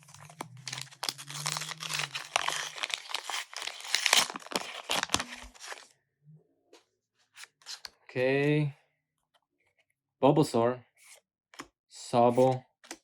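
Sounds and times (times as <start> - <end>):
wrapper tearing and crinkling: 0.0 - 5.9.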